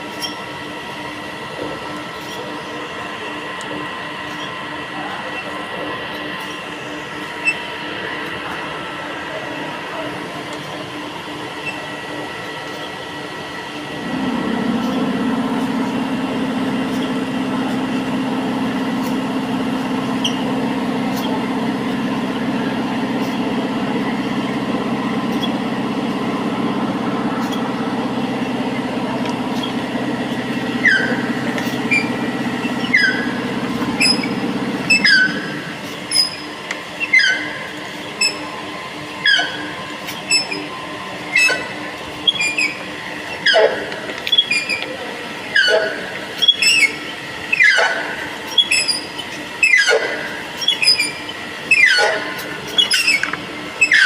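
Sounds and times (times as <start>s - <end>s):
drill running: 14.0s - 36.5s.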